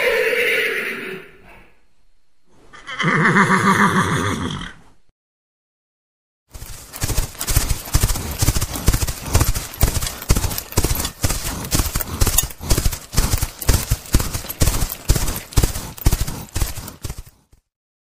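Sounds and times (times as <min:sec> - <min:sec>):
horse hoofbeats: 0:06.5 - 0:17.6.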